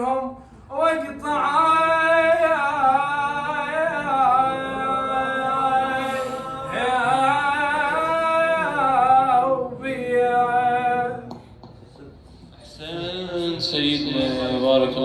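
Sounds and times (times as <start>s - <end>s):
man singing unaccompanied: 0.0s - 11.3s.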